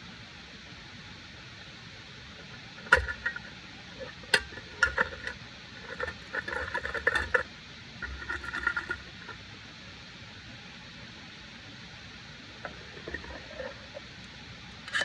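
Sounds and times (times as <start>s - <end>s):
metal cookware clattering: 2.8s - 7.4s, 8.0s - 9.4s.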